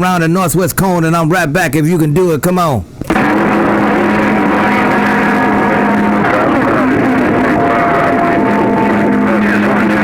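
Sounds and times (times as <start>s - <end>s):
faint garbled radio voices: 0.0s - 10.0s
radio receiver hissing: 2.8s - 10.0s.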